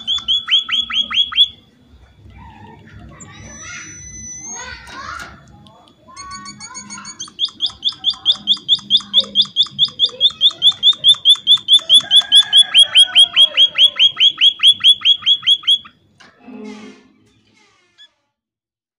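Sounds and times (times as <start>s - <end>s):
bird chirping: 0.0s - 1.6s, 2.4s - 4.8s, 6.2s - 16.0s.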